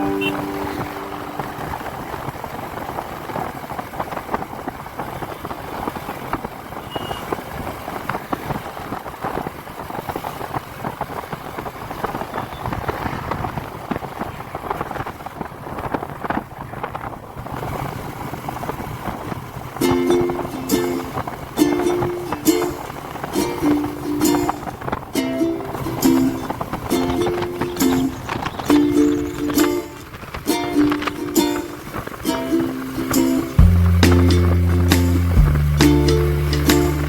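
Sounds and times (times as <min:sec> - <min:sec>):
motorcycle engine and road noise: 0:00.0 - 0:37.0.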